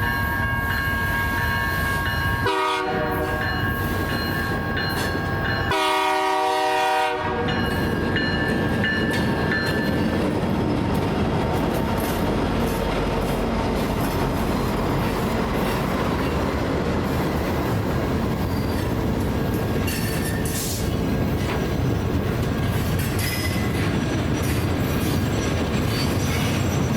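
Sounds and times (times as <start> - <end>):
train running past: 0.0 - 26.9
locomotive horn: 2.4 - 3.6, 5.6 - 7.6.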